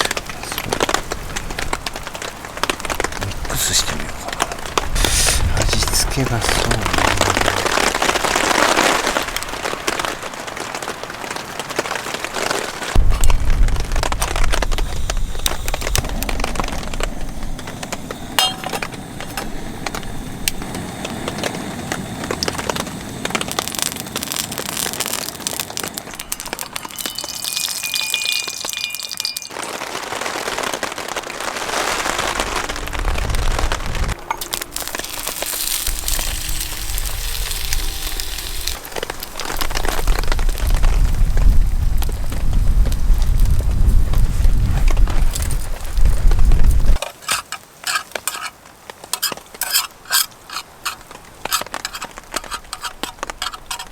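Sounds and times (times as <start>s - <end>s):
rain pattering: 0.0s - 47.0s, 47.6s - 53.9s
wind buffeting microphone: 4.2s - 9.5s, 12.9s - 23.5s, 32.2s - 34.2s, 35.8s - 47.0s.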